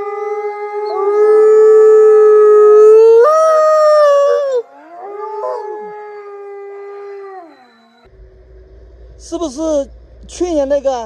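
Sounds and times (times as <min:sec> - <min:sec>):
animal howling: 0:00.0 - 0:08.1.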